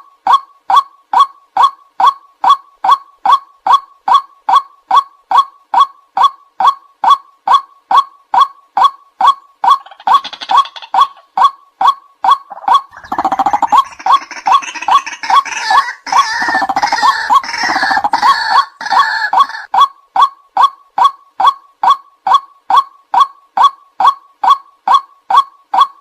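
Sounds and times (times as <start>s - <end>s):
waterhen calling repeated notes: 0.0s - 26.0s
overlapping harsh bird calls: 9.6s - 11.5s, 12.4s - 19.7s.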